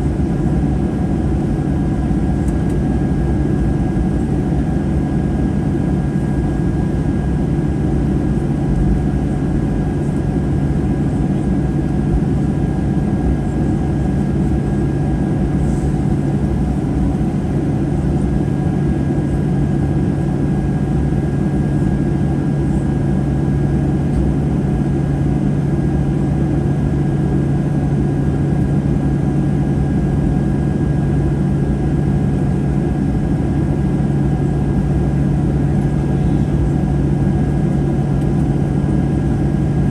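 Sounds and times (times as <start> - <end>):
low cabin hum: 0.1 - 24.3, 34.4 - 39.9.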